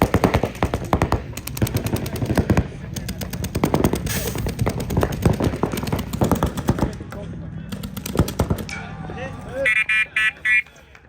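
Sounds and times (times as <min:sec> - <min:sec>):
paintball markers firing rapidly: 0:00.0 - 0:08.8.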